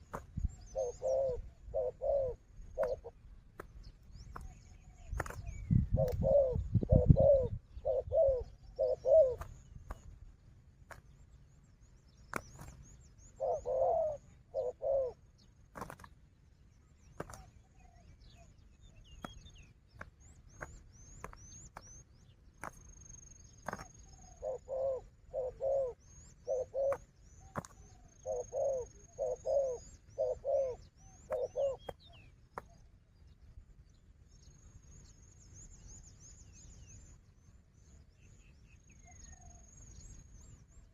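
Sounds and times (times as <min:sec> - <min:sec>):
doves cooing: 0:00.0 - 0:03.2, 0:04.3 - 0:10.0, 0:12.3 - 0:16.1, 0:22.6 - 0:32.7
small bird chirping: 0:00.0 - 0:40.9.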